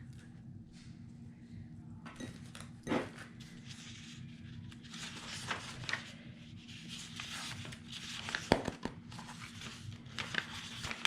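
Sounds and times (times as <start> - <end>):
paper rustling and sliding: 3.4 - 11.0.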